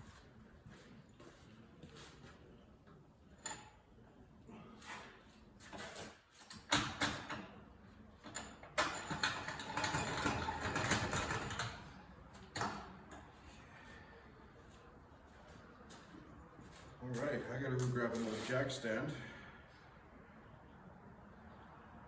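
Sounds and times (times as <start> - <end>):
rattling scraping of heavy parts: 8.8 - 12.0.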